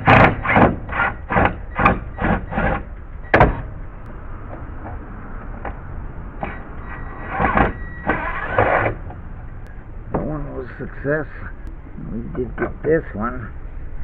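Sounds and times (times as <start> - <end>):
drill backing out screw: 6.4 - 9.0
screw creaking in wood: 6.9 - 9.0.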